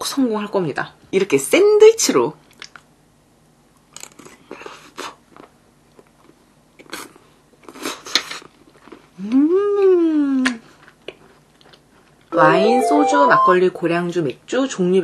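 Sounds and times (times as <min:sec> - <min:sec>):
close-up chewing: 0:05.3 - 0:09.2, 0:10.8 - 0:12.3.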